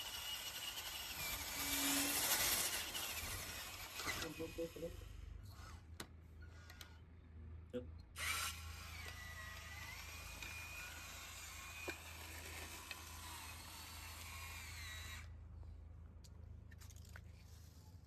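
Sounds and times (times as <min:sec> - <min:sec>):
small electric motor whining: 0:00.0 - 0:05.9, 0:08.2 - 0:15.3.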